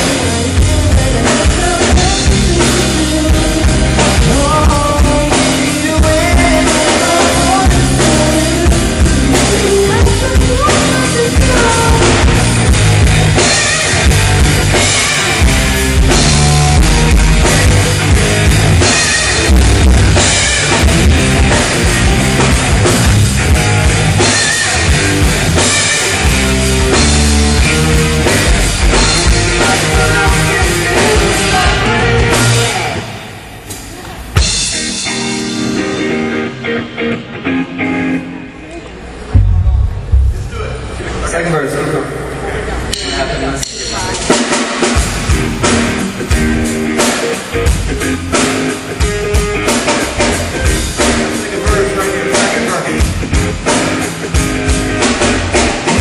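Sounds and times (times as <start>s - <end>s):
drum kit: 0.0s - 36.5s, 39.2s - 41.4s, 43.0s - 56.0s
rock band playing loud: 0.0s - 41.3s, 43.7s - 56.0s
single sharp hit: 39.4s - 41.2s.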